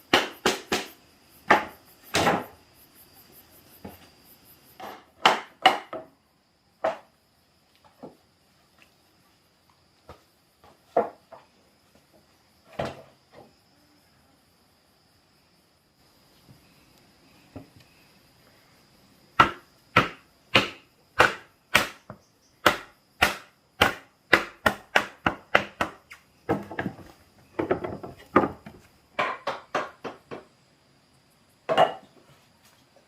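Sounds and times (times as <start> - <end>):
hand tool striking wood: 4.8 - 6.1, 19.4 - 27.0.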